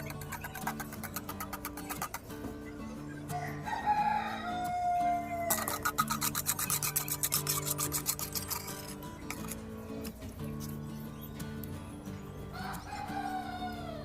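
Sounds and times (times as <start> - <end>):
scratchy rasping strokes: 0.0 - 2.4, 5.3 - 10.9
background music: 0.0 - 14.0
rooster crowing: 3.3 - 5.7, 12.5 - 14.0.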